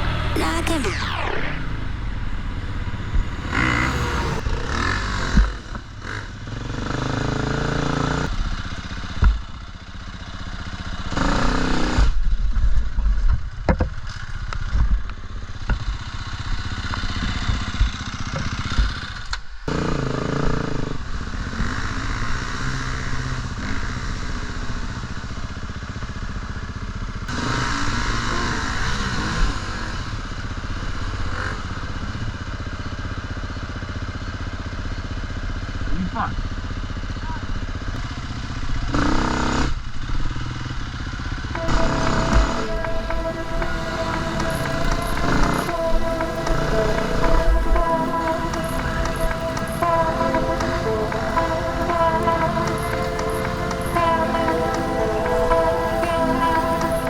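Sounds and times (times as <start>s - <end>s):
dirt bike engine revving: 0.0s - 12.3s, 15.7s - 26.3s, 27.1s - 30.2s, 37.9s - 57.0s.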